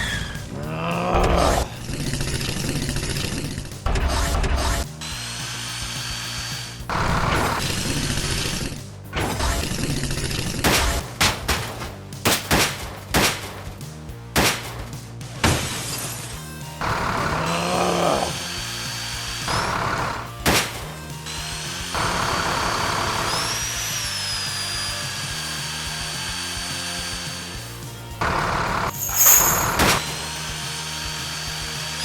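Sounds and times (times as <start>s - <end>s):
background music: 0.0s - 32.0s
sharp knocks and cracks: 9.2s - 16.4s, 19.8s - 21.0s
thin high whine: 28.9s - 32.0s.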